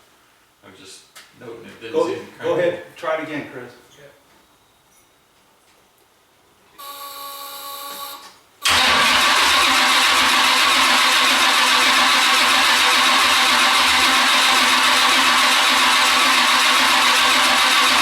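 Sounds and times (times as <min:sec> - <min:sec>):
starter motor whining: 0:07.9 - 0:18.0
car engine running: 0:08.7 - 0:18.0.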